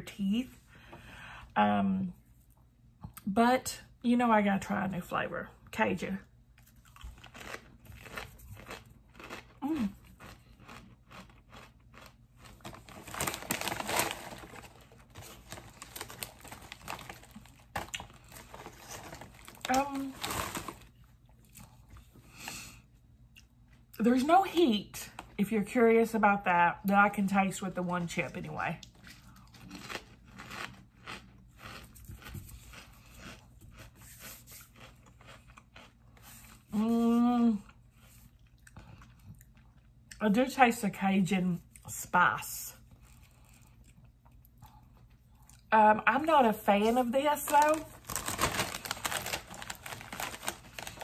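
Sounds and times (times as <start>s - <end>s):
potato chip crunching: 6.6s - 21.9s, 28.8s - 36.5s, 46.8s - 51.0s.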